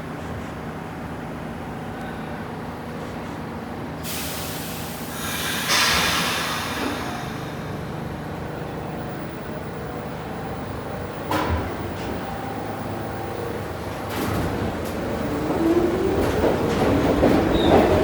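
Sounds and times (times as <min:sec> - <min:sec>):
subway car low hum: 0:00.0 - 0:18.0
air brakes hissing: 0:04.0 - 0:08.8.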